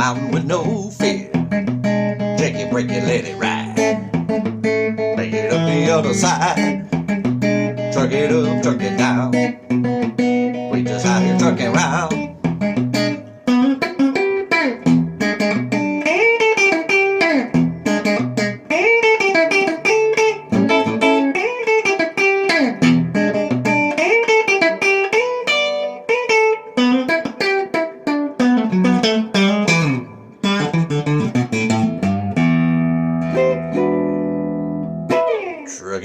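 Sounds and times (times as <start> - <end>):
electric guitar solo: 0.0 - 36.0.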